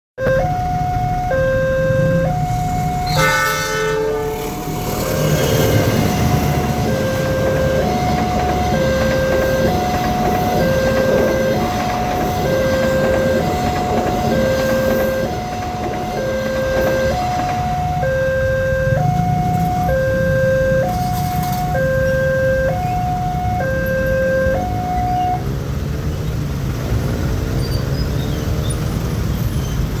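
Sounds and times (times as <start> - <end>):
level crossing alarm ding-dong: 0.2 - 3.9, 6.0 - 25.4
passing train rumble: 0.2 - 30.0
train horn blast: 3.0 - 22.9.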